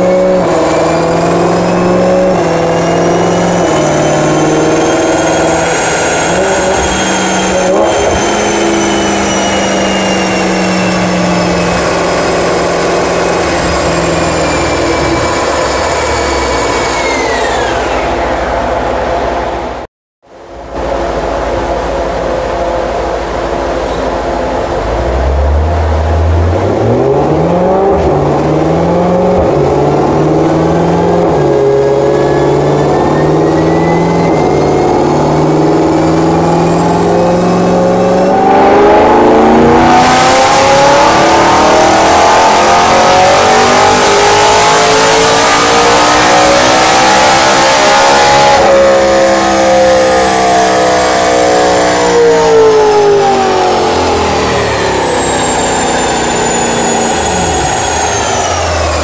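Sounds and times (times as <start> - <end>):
car engine revving: 0.0 - 19.8, 21.0 - 59.0
loud rushing noise: 20.8 - 50.4.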